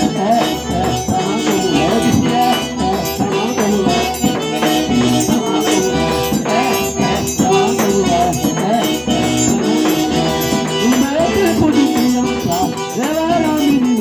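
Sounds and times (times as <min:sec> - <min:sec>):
button accordion melody: 0:00.0 - 0:14.0
percussion rhythm: 0:00.0 - 0:14.0.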